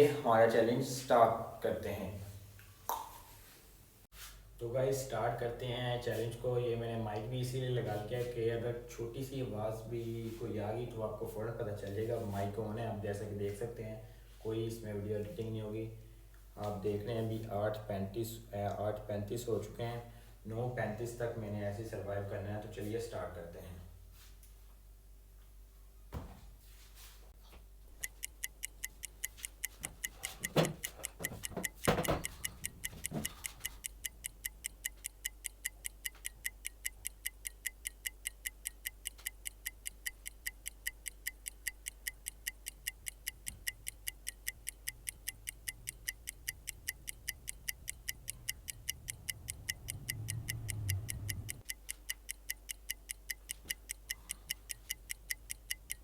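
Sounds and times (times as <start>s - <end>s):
clock ticking fast: 28.0s - 56.0s
knocks or rustles: 30.3s - 33.8s.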